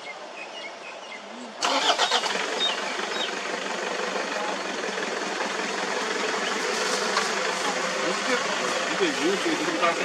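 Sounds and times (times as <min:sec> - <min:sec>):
engine starting and idling: 0:01.6 - 0:10.0.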